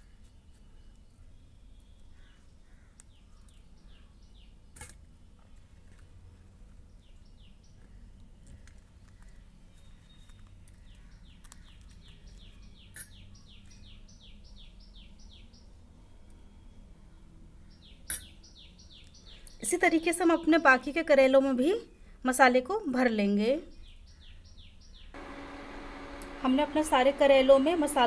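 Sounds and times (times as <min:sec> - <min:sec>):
bird chirping: 0:06.9 - 0:20.5.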